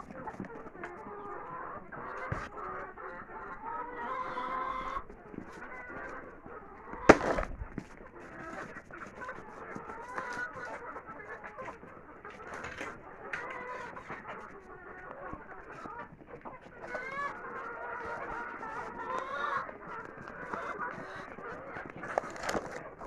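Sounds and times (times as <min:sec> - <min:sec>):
chickens clucking: 0:00.0 - 0:23.0
loud thump: 0:07.1 - 0:07.8.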